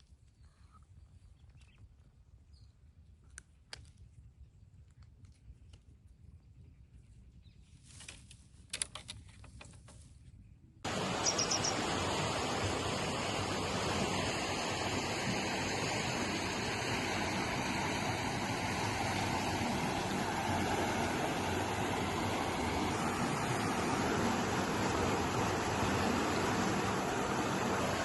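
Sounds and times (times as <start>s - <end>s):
loud steady rushing noise: 10.9s - 28.0s.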